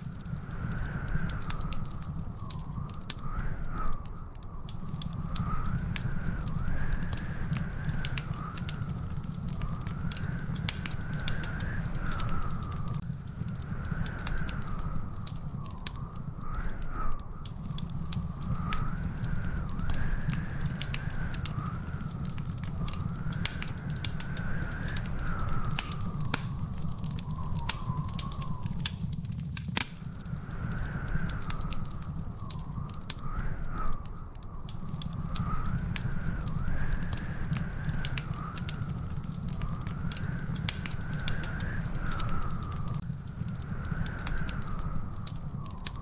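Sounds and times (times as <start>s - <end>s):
fireplace fire crackling and popping: 0.0s - 46.0s.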